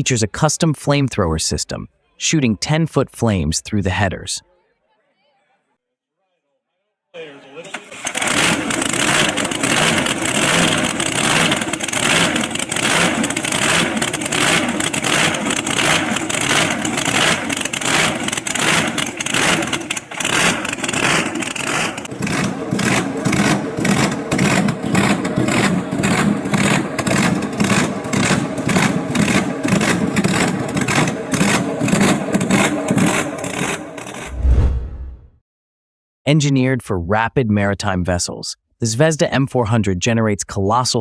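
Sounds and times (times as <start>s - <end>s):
loud pulsing car engine: 7.9s - 34.3s.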